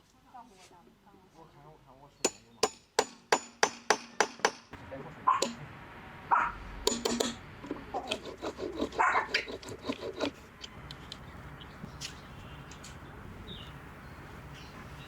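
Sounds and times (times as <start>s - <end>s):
dog barking: 5.3s - 5.6s, 6.3s - 6.6s, 8.9s - 9.4s.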